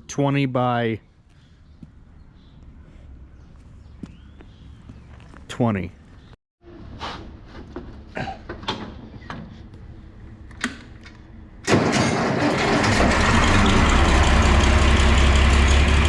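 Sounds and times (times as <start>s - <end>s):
engine starting and running: 10.5s - 16.0s.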